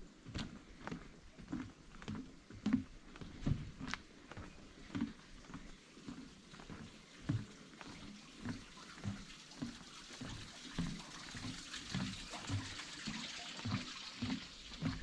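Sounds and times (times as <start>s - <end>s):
footsteps on a path: 0.0s - 15.0s
running water rushing: 3.4s - 15.0s.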